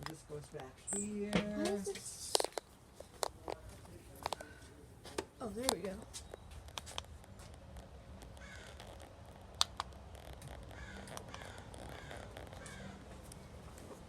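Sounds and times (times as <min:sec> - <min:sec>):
sharp clicks: 0:05.6 - 0:13.4
harsh bird calls: 0:08.4 - 0:09.0, 0:10.7 - 0:13.1.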